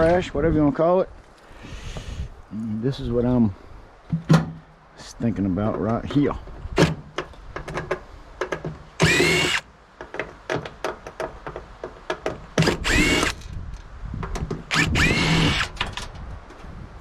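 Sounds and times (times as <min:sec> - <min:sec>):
handling clicks and knocks: 0:05.6 - 0:09.0, 0:10.0 - 0:14.7
power drill motor whine: 0:09.0 - 0:09.7, 0:12.6 - 0:13.4, 0:14.7 - 0:15.8.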